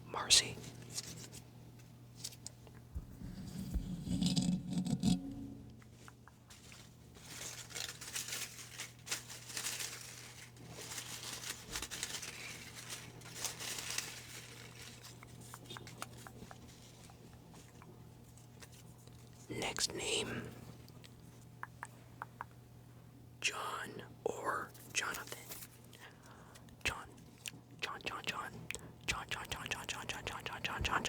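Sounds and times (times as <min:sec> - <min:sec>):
paper slips rustling: 0:06.5 - 0:17.1.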